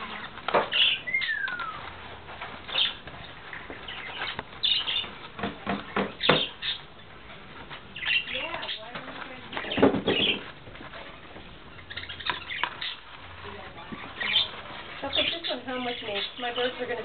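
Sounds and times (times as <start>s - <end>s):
crackling and rustling fibre: 0.0s - 17.0s.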